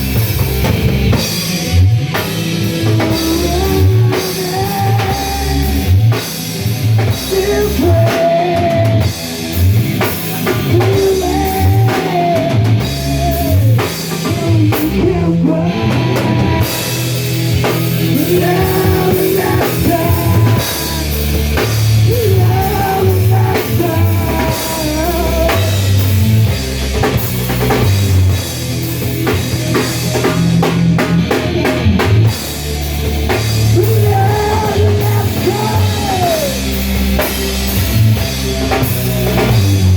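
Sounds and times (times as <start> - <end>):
drum kit beat: 0.0 - 39.9
guitar: 0.0 - 39.9
rock music: 0.0 - 39.9
person singing: 1.4 - 17.2, 18.0 - 21.4, 22.0 - 26.2, 33.6 - 37.3.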